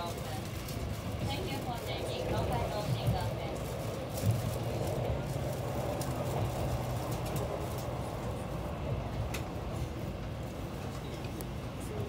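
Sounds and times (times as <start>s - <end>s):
train low rumble and hum: 0.0s - 12.0s.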